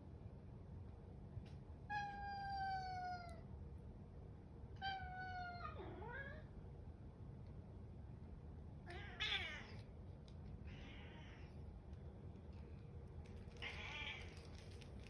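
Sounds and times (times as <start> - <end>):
cat meowing: 8.9 - 9.8.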